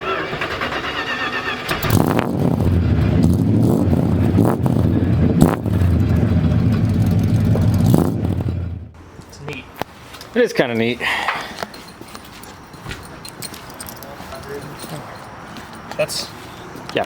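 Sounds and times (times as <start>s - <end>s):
vee eight engine starting and rumbling: 0.0s - 9.0s.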